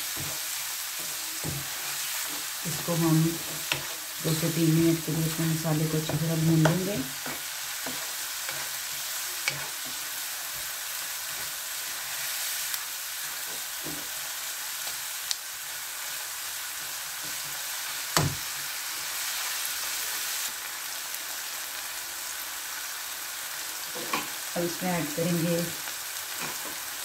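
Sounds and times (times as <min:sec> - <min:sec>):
spatula scraping a pan: 0:00.0 - 0:04.5, 0:05.8 - 0:12.6
masala sizzling in oil: 0:00.0 - 0:27.0.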